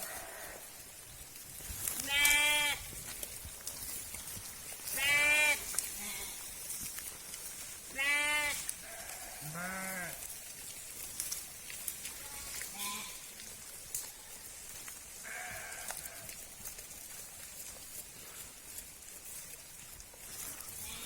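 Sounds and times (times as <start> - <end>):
sheep bleating: 0.0 - 0.7, 2.0 - 2.9, 4.9 - 6.4, 7.9 - 10.2, 12.1 - 13.3, 15.2 - 16.4, 20.7 - 21.0.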